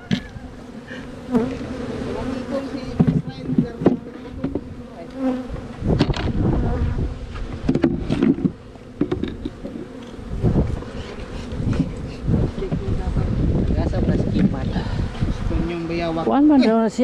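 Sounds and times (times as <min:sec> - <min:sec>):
honey bees buzzing: 0:00.0 - 0:17.0
hive equipment knocking and clattering: 0:02.9 - 0:05.3, 0:07.4 - 0:12.0.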